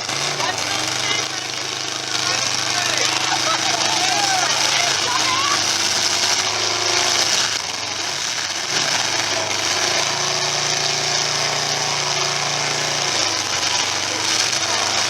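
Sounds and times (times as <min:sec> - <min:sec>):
car engines running: 0:00.0 - 0:15.0.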